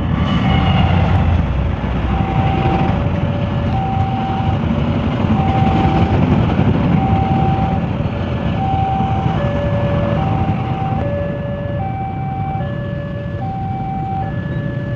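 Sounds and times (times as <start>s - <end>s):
diesel locomotive engine rumble: 0.0s - 14.9s
two-tone electronic warning beeps: 2.1s - 4.7s, 5.3s - 7.9s, 8.6s - 14.9s.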